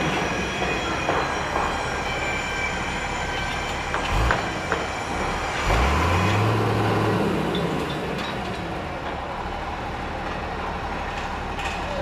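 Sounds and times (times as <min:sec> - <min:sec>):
rumble of vehicle and site noise: 0:00.0 - 0:12.0
truck engine humming: 0:00.0 - 0:12.0.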